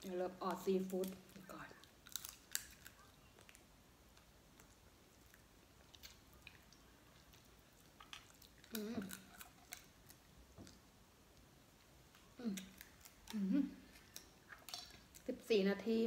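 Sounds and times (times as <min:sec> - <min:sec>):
chewing and lip smacks: 0:00.9 - 0:10.8, 0:12.1 - 0:15.3
person humming: 0:08.7 - 0:09.1, 0:12.4 - 0:12.7, 0:13.3 - 0:13.8.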